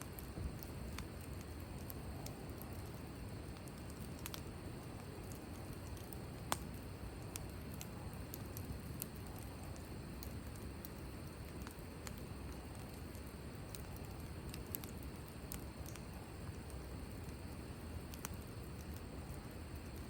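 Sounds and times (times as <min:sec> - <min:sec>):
sharp fire pops: 0:00.0 - 0:20.0
wood fire crackling: 0:00.0 - 0:20.0.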